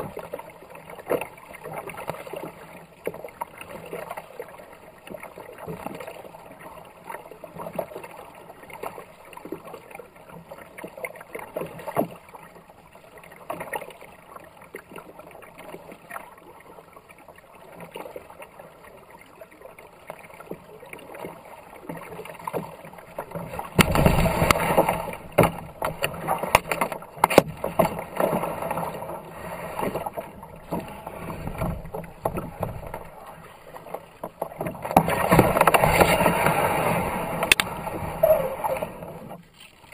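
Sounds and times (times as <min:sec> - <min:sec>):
kayak paddle strokes: 0:00.0 - 0:39.9
rushing river water: 0:00.0 - 0:39.9
water splashing: 0:00.0 - 0:39.9.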